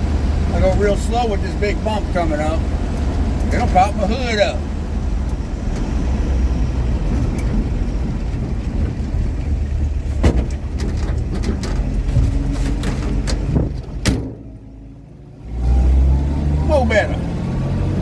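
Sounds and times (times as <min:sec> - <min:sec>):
engine and road rumble: 0:00.0 - 0:18.0
truck body rattling knocks: 0:07.0 - 0:14.9.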